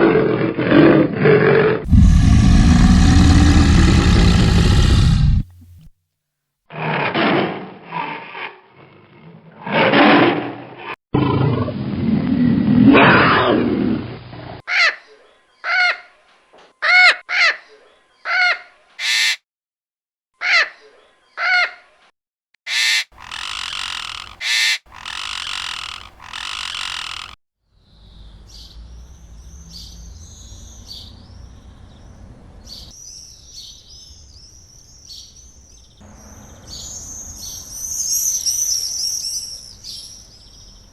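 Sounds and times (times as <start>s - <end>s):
big cat growling roar: 0.0s - 5.6s, 6.7s - 14.5s
long noisy animal calls: 1.2s - 5.5s, 19.0s - 19.4s, 22.7s - 27.4s
short high animal calls: 19.0s - 19.4s, 22.7s - 27.4s
faint bird chirping: 22.7s - 40.9s.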